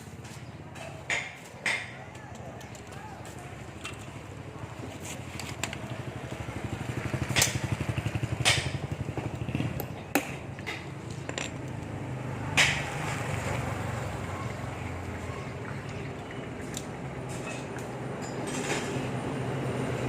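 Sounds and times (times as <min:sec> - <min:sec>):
tools knocking on metal: 0:10.2 - 0:11.6.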